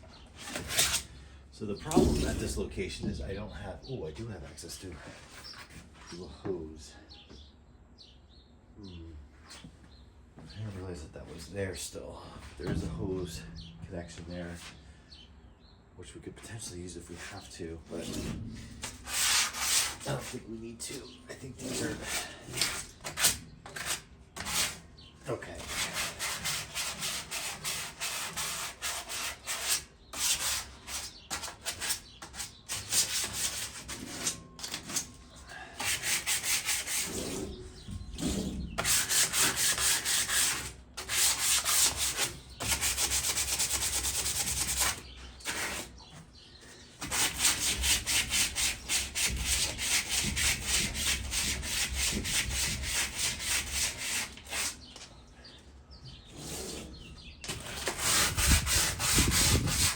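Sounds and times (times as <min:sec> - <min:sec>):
sandpaper scraping metal: 0:17.2 - 0:24.8, 0:25.6 - 0:35.1, 0:35.8 - 0:46.0, 0:47.0 - 0:54.8, 0:56.3 - 0:59.9.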